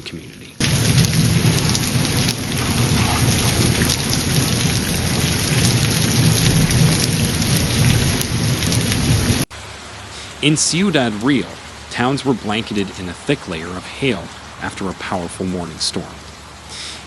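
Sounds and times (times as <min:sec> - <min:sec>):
deep steady rumble: 0:00.0 - 0:09.6
heavy rain downpour: 0:00.1 - 0:17.0.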